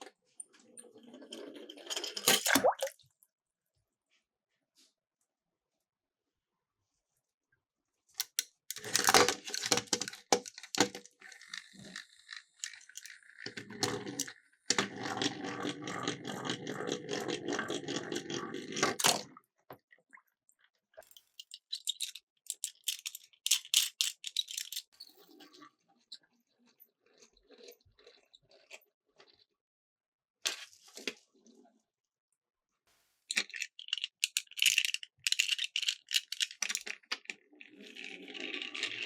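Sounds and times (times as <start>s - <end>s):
toy cars rattling down a slope: 8.2s - 19.1s, 21.5s - 24.9s, 33.3s - 39.0s.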